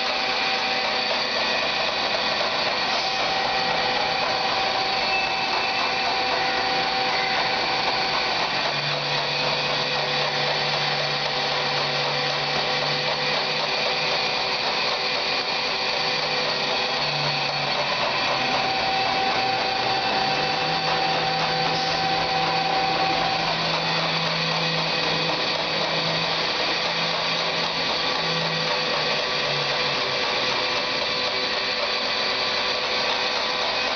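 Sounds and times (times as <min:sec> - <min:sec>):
lathe whirring and whining: 0:00.0 - 0:33.9.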